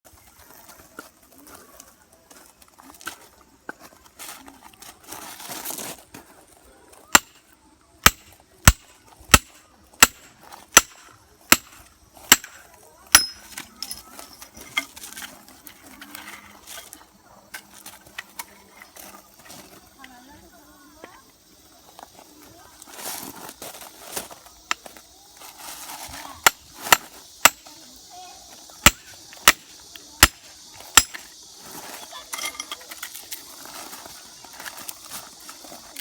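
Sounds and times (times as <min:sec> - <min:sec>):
axe knocking into firewood: 0:07.2 - 0:07.4, 0:08.0 - 0:13.7, 0:26.4 - 0:27.7, 0:28.9 - 0:31.3.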